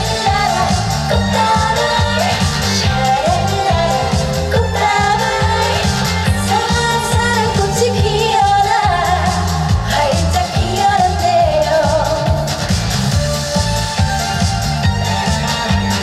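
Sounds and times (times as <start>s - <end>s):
woman singing: 0.0s - 12.6s
backing track with bass beat: 0.0s - 16.0s.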